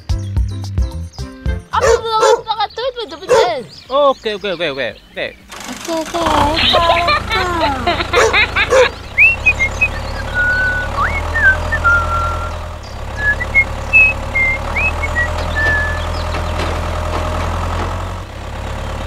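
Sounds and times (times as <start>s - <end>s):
small tractor engine droning: 5.0s - 19.0s
short high chirps: 13.2s - 16.0s.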